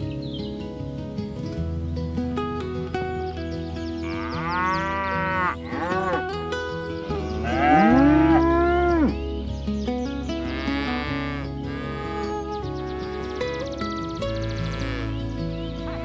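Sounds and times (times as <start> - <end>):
background music: 0.0 - 16.0
cattle mooing: 4.0 - 6.4, 7.3 - 9.2, 10.5 - 15.2.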